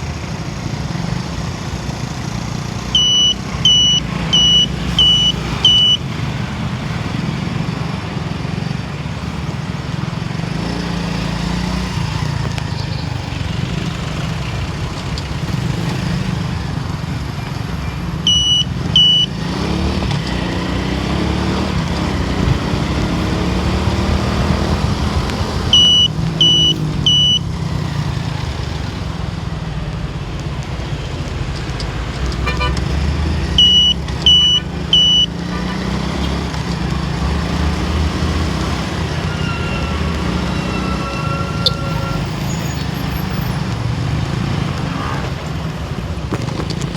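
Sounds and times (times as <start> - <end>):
car engine and road rumble: 0.0 - 46.9
short high-pitched beeps: 3.0 - 6.1, 18.3 - 19.4, 25.4 - 27.5, 33.6 - 35.5.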